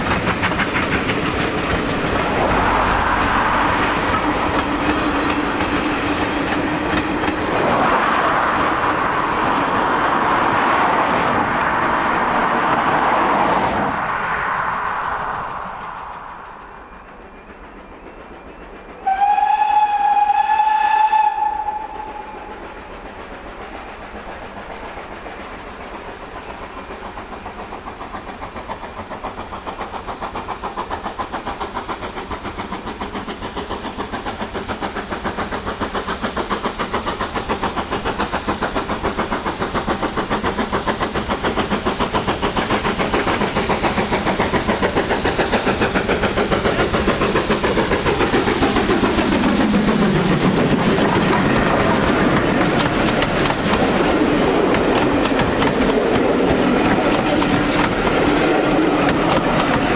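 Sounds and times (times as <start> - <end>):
steam locomotive beats: 0.0 - 59.9
steam whistle blast: 19.0 - 22.7.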